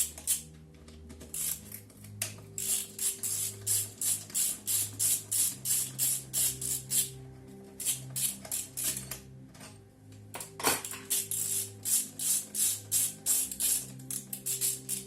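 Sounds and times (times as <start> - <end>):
ratchet wrench clicking: 0.0 - 0.5, 1.3 - 1.8, 2.5 - 7.2, 7.8 - 9.2, 10.4 - 15.0.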